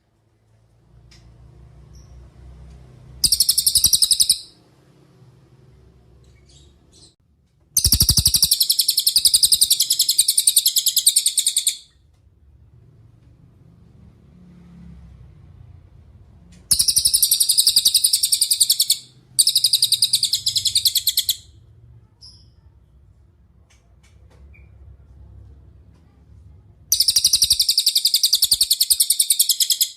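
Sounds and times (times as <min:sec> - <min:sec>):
bird singing rapid high trills: 0:03.2 - 0:04.6, 0:07.8 - 0:11.8, 0:16.7 - 0:21.5, 0:26.9 - 0:29.9.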